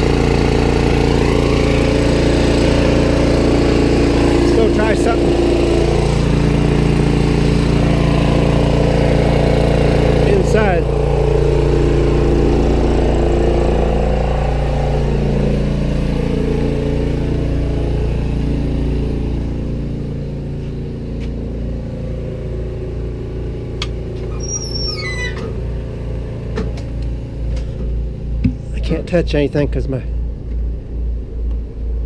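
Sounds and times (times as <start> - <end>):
generator running: 0.0 - 32.0
high squeal falling in pitch: 24.3 - 25.5.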